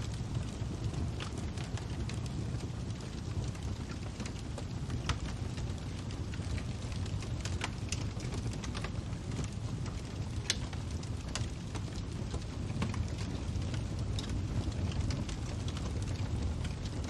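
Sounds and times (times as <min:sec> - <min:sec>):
fire crackling: 0:00.0 - 0:17.0.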